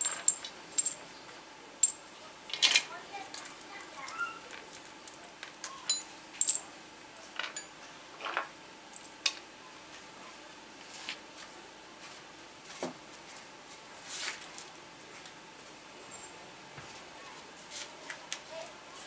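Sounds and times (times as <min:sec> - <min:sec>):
tools and metal parts clinking: 0:00.0 - 0:01.1, 0:01.8 - 0:06.7, 0:07.4 - 0:08.4.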